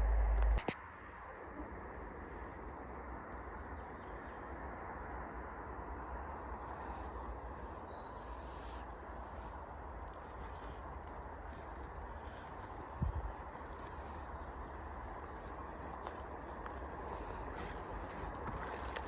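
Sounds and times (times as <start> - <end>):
forest rush: 5.6 - 19.0.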